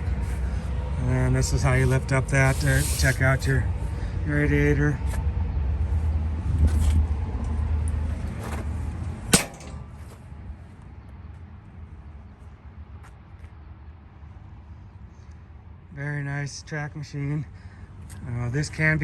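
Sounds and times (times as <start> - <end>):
sharp metal bang: 9.3 - 10.0.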